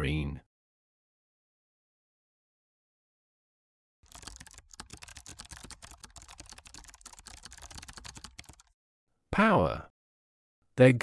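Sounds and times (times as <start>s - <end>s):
rapid typing on a keyboard: 4.0s - 8.8s.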